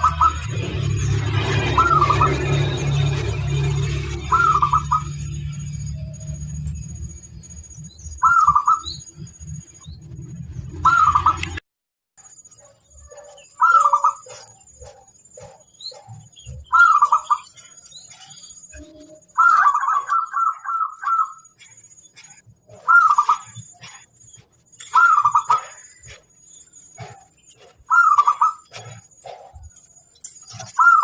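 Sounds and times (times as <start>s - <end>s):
dove cooing: 13.1s - 17.5s, 22.7s - 24.0s, 27.9s - 29.6s, 30.6s - 31.0s.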